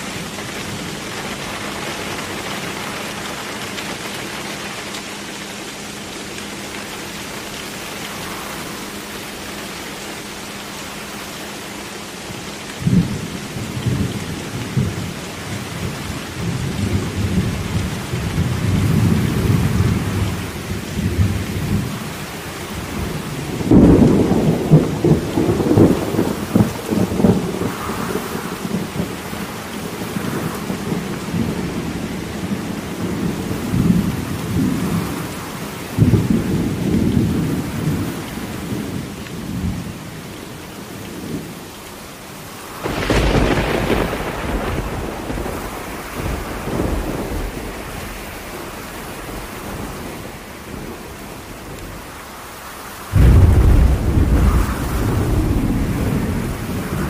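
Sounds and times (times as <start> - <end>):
steady rain: 0.0 - 57.0
thunder rumbling: 12.8 - 40.0, 42.7 - 52.3, 53.1 - 57.0
sharp thunder clap: 42.8 - 47.6, 53.1 - 57.0.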